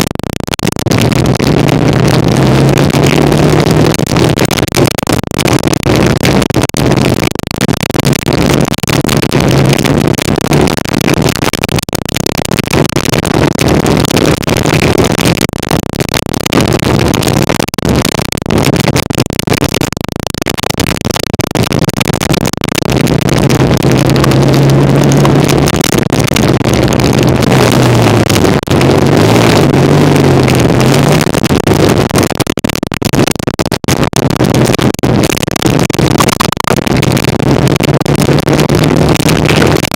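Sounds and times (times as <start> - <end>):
motorcycle engine running: 26.8 - 31.2.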